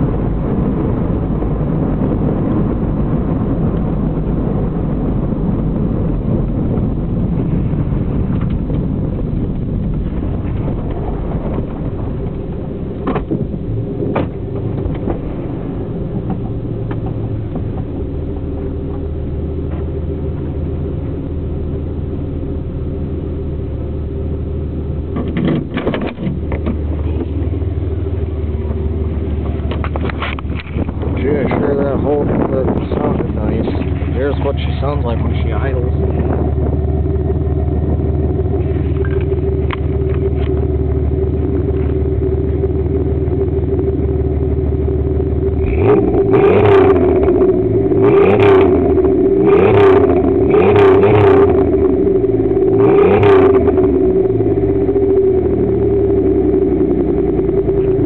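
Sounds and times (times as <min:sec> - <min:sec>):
exhaust rumble: 0:00.0 - 0:58.0
thumps: 0:08.2 - 0:21.2.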